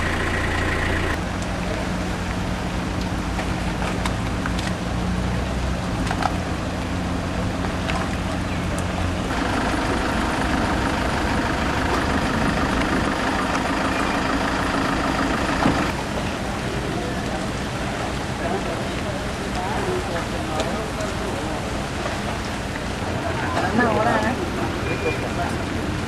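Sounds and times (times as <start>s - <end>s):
engine hum: 0.0s - 26.0s
rain: 0.0s - 26.0s
wind: 0.0s - 26.0s.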